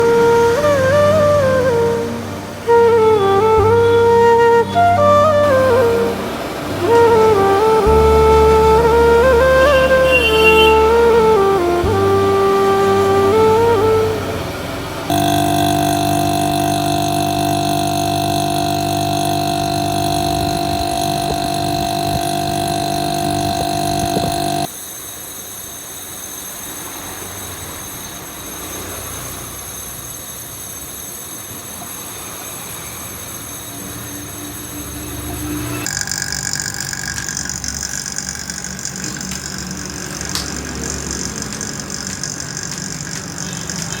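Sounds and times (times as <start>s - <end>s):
air conditioner motor hum: 0.0s - 24.7s.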